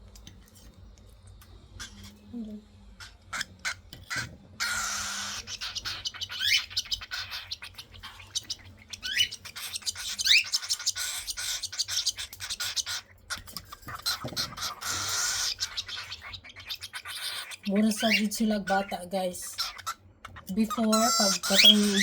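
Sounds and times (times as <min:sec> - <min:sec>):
cockatiel squeaks: 0:01.8 - 0:02.2, 0:03.0 - 0:18.9, 0:19.5 - 0:22.0
baby cockatiels hissy calls: 0:03.0 - 0:13.1, 0:14.0 - 0:18.9, 0:19.5 - 0:20.0, 0:20.8 - 0:22.0.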